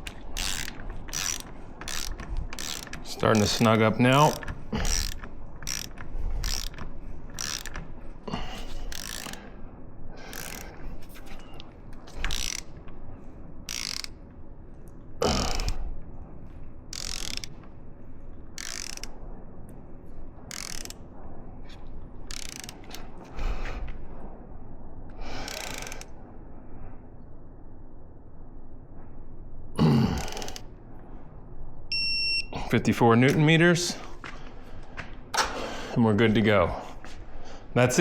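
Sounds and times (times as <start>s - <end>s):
hand ratchet clicking: 0.0s - 8.0s, 8.6s - 9.5s, 10.2s - 10.8s, 12.1s - 12.8s, 13.7s - 14.2s, 16.9s - 17.7s, 18.6s - 19.2s, 20.5s - 21.0s, 22.3s - 23.0s, 25.4s - 26.1s, 30.2s - 30.7s.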